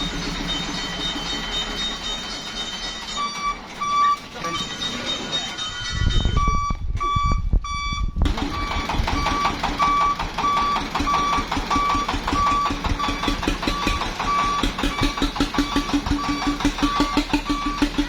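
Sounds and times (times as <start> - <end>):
vehicle engine running: 0.0 - 5.8, 8.2 - 18.0
reversing alarm beeping: 0.0 - 18.0
lower beep: 3.1 - 18.0.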